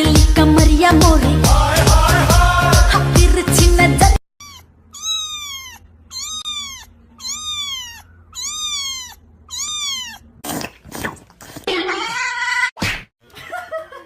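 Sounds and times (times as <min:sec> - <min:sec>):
cat meowing: 0:04.4 - 0:10.4.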